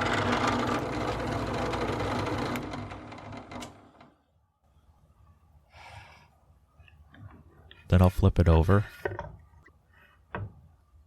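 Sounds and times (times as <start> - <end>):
drill press boring wood: 0.0 - 4.2.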